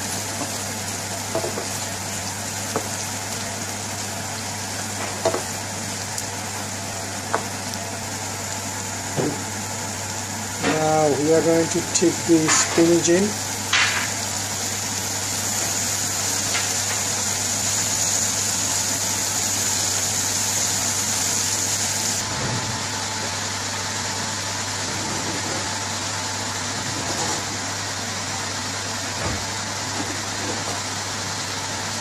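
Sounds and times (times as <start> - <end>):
spinach sizzling in a frying pan: 0.0 - 24.8.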